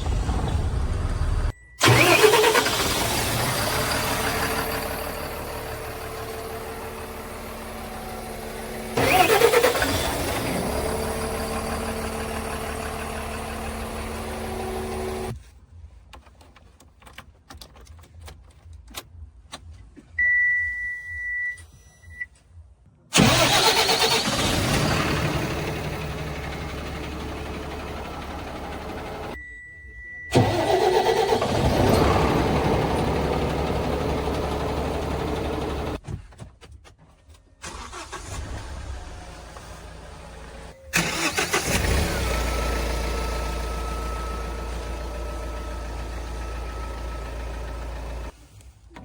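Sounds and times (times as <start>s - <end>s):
loud heavy vehicle engine: 0.0s - 15.3s, 23.2s - 29.4s, 30.3s - 36.0s
low engine rumble: 0.0s - 15.3s, 23.2s - 29.4s, 30.3s - 36.0s.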